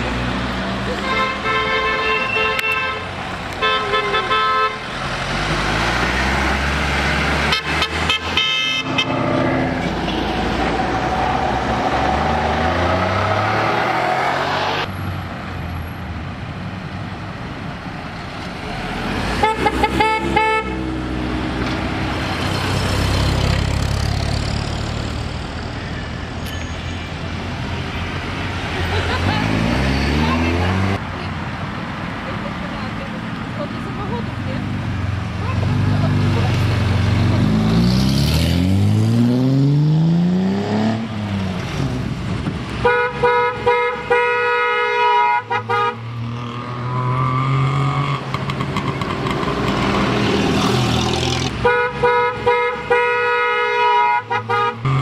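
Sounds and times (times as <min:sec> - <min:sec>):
car horns honking: 0:00.9 - 0:05.0, 0:07.3 - 0:10.3, 0:19.3 - 0:21.1, 0:42.8 - 0:48.2, 0:51.4 - 0:55.0
car engines running: 0:03.1 - 0:43.0.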